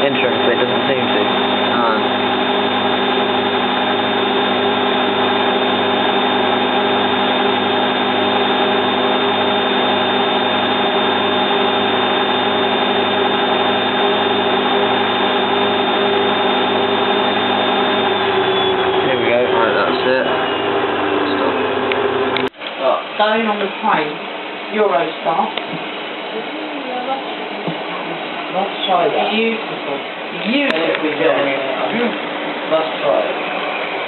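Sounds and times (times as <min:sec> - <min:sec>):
thin high whine: 0:00.0 - 0:24.0
washing machine spinning: 0:00.0 - 0:34.0.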